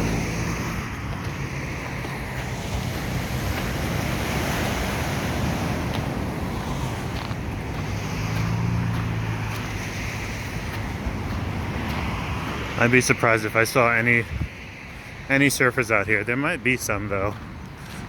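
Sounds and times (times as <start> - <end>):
ocean surf washing in: 0.0 - 17.6
wind buffeting microphone: 0.0 - 18.0.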